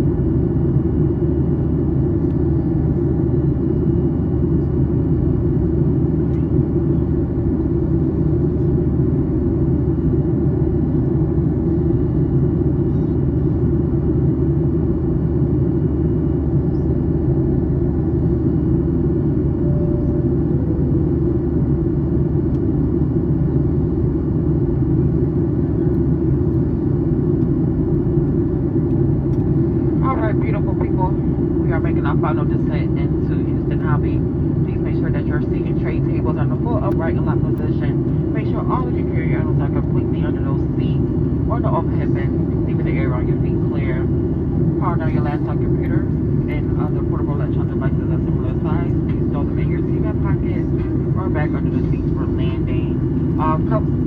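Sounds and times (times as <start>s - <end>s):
airplane cabin drone: 0.0s - 54.0s
jet engines rumbling: 0.0s - 54.0s.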